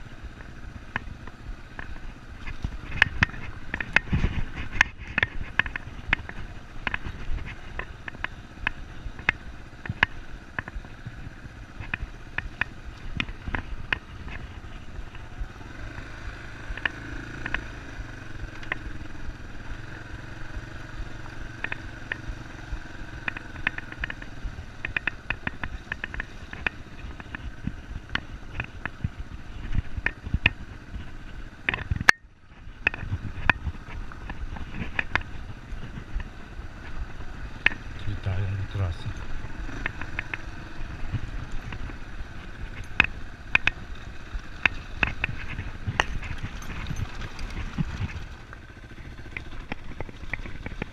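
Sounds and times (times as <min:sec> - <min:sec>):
motorcycle engine running: 0:00.0 - 0:50.9
knocks and rattles: 0:44.6 - 0:50.9.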